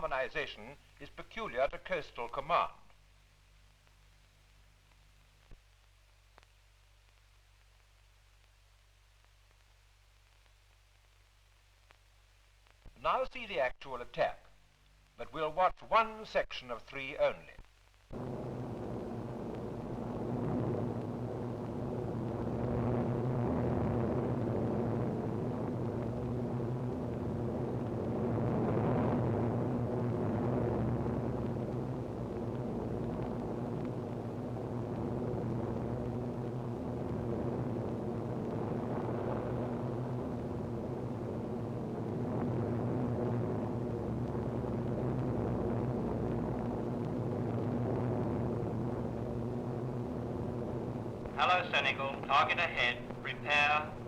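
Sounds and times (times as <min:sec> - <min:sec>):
propeller aircraft droning: 0:18.2 - 0:54.0.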